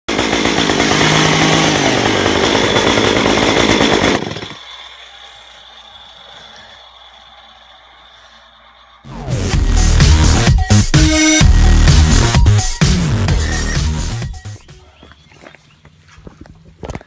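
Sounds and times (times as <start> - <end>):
chainsaw engine running: 0.1 - 14.8.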